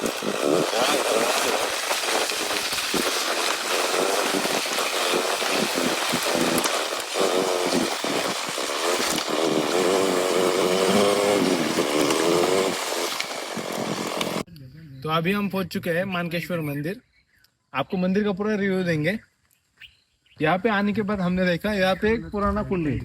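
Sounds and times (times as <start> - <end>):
motorcycle engine buzzing: 0.0 - 14.5.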